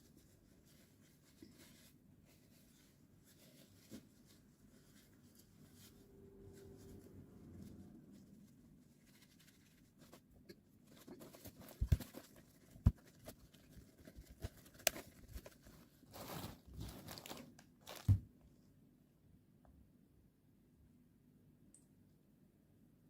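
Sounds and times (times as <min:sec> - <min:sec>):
material crinkling and rustling: 0:00.0 - 0:18.4.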